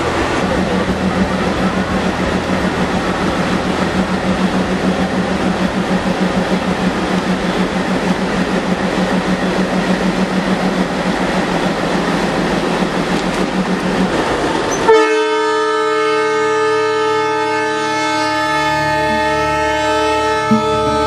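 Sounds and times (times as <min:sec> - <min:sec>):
train running rumble: 0:00.0 - 0:21.0
locomotive horn blast: 0:14.8 - 0:21.0.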